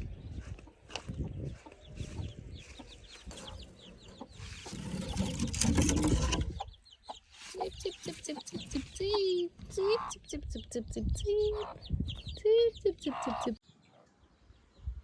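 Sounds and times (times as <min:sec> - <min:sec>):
chickens clucking: 0:00.0 - 0:14.0
chicks cheeping: 0:00.0 - 0:15.0
rustling noise: 0:00.4 - 0:06.6.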